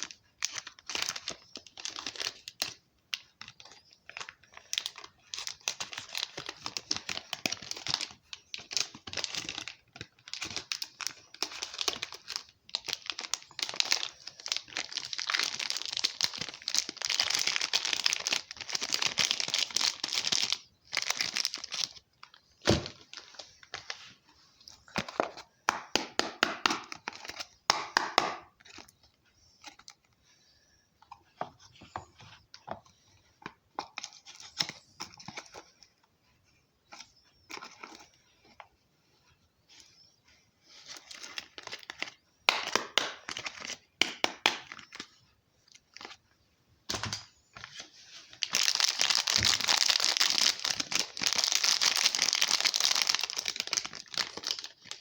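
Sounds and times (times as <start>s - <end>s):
wrappers crinkling: 0.0s - 24.0s, 47.6s - 55.0s.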